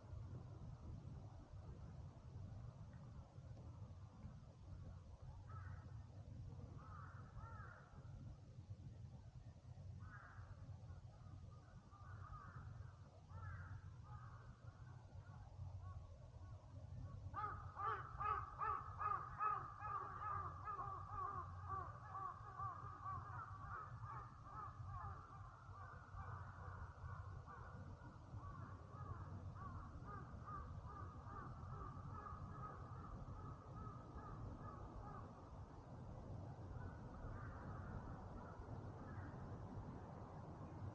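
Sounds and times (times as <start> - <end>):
crows cawing: 5.5 - 5.9, 6.8 - 7.9, 10.0 - 10.5, 12.0 - 12.7, 13.3 - 14.5, 17.4 - 27.8, 28.4 - 35.4.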